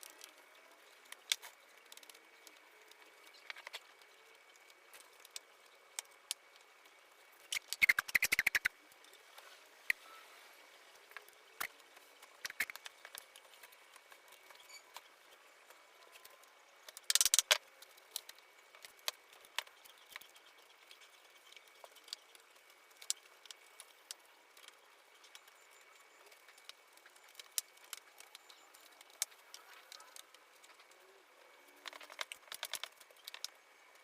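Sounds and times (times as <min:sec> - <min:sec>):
clicks and taps on wooden parts: 0:31.8 - 0:33.6.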